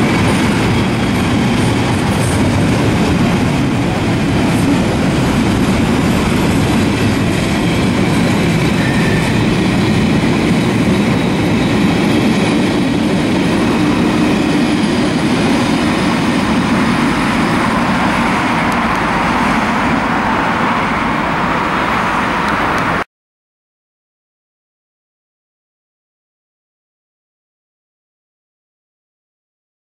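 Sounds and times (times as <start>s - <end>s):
freight train rumbling and rattling: 0.0s - 23.0s.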